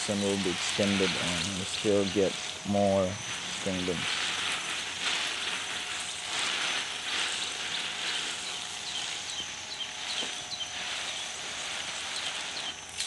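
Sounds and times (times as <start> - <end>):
steady high hiss: 0.0 - 13.0
bird chirping: 7.3 - 13.0.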